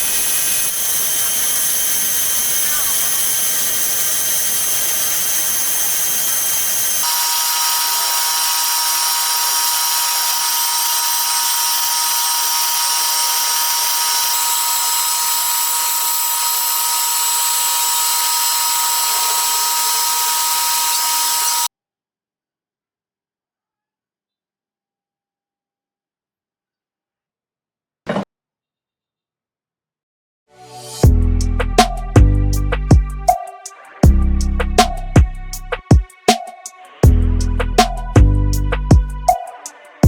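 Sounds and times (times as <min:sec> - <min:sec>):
power tool whining: 0:00.0 - 0:21.7.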